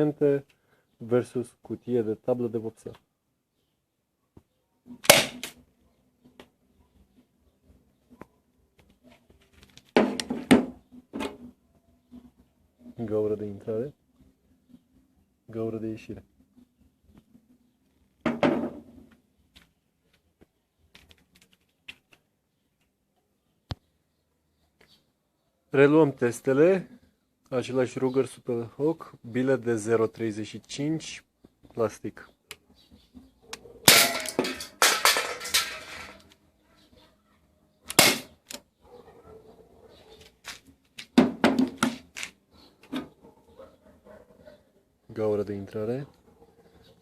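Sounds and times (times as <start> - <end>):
airsoft revolver firing cracks: 5.0 - 5.6, 37.9 - 38.6
knock with a rattle: 10.0 - 11.4, 18.2 - 19.0, 41.2 - 42.0
pellets clattering: 33.9 - 36.3.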